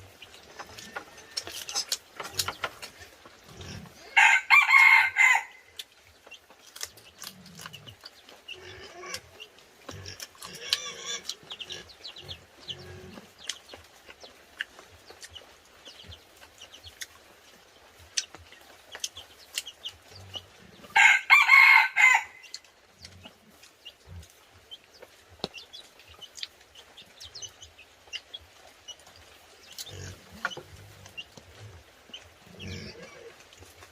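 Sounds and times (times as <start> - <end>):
faint clicks and knocks: 0.3 - 3.5
rooster crowing: 4.1 - 5.7, 21.0 - 22.5.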